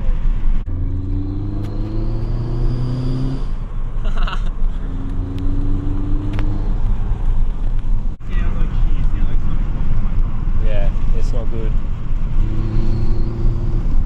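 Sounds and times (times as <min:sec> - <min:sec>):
diesel engine accelerating: 0:00.6 - 0:03.8, 0:04.8 - 0:07.6, 0:11.9 - 0:14.0.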